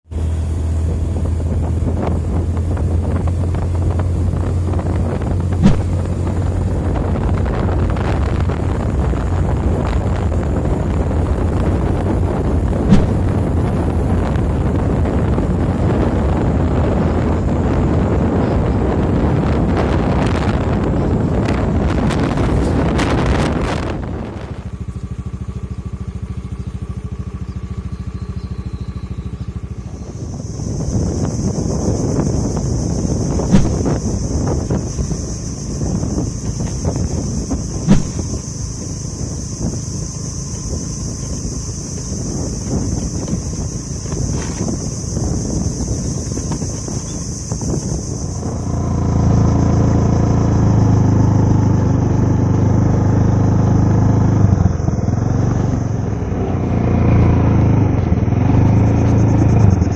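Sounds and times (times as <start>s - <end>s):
wind buffeting microphone: 0.1s - 59.9s
loud thump: 5.5s - 6.5s, 12.8s - 13.9s, 33.4s - 34.4s, 37.8s - 38.6s
small engine idling: 21.0s - 59.9s.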